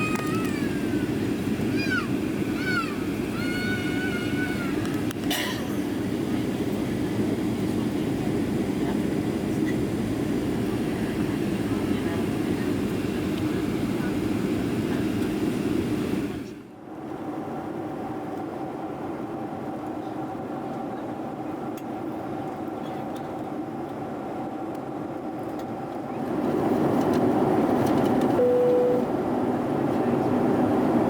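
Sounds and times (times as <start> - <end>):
airliner engines and airflow rush: 0.0 - 31.0
single chime tone: 28.4 - 29.1.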